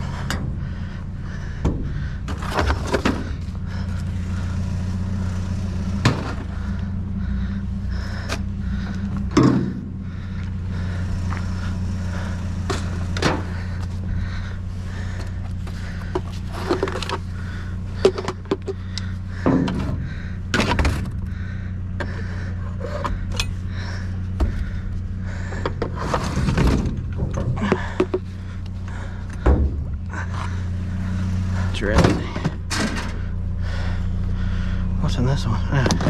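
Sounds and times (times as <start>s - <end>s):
vehicle engine idling: 0.0s - 36.0s
hard objects knocking and clunking: 25.6s - 28.4s, 29.3s - 30.5s.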